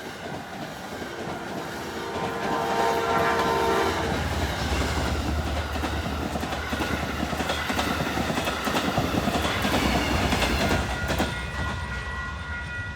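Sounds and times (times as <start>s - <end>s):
passenger train rumbling past: 0.0s - 12.9s
train wheels clicking over rail joints: 4.1s - 11.8s.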